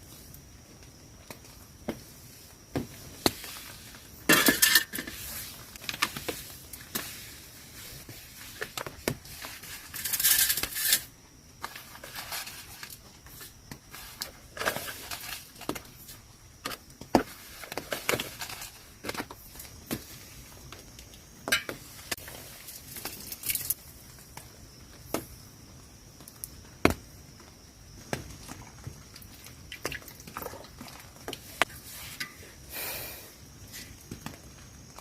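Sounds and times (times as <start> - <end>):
clinks and knocks of utensils: 4.3 - 5.2, 21.5 - 21.8.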